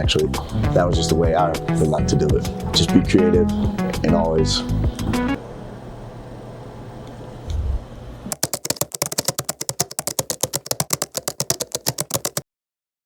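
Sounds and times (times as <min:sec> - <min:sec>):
rapid keyboard typing: 0:08.3 - 0:12.4.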